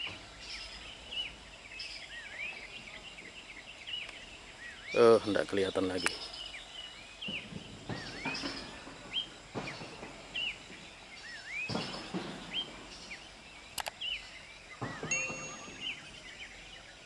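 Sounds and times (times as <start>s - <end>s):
sharp click: 13.8s - 14.0s
soft knocks: 14.8s - 16.2s.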